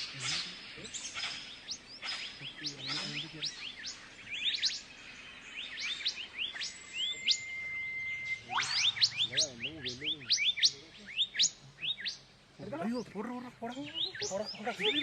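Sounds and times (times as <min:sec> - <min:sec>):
forest birds chirping: 0:00.0 - 0:15.0
steady high whistle: 0:06.6 - 0:10.5.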